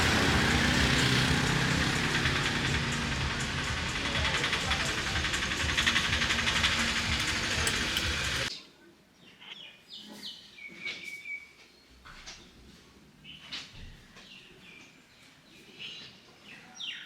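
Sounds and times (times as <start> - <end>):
loud rushing noise: 0.0 - 8.5
birds chirping: 0.0 - 17.0.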